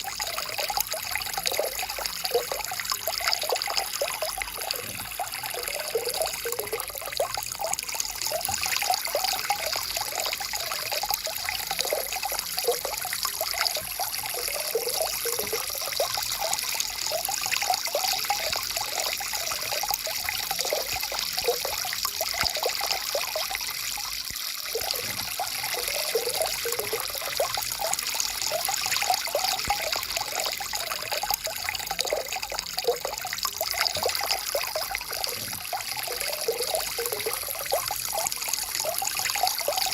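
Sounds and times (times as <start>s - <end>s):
stream trickling and bubbling: 0.0s - 39.9s.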